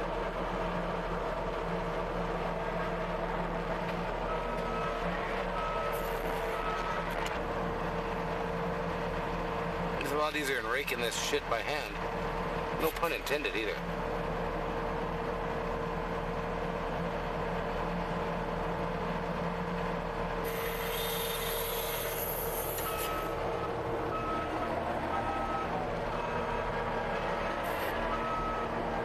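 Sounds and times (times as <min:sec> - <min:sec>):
skid steer engine running: 0:00.0 - 0:29.0
burst of hiss: 0:20.5 - 0:22.9.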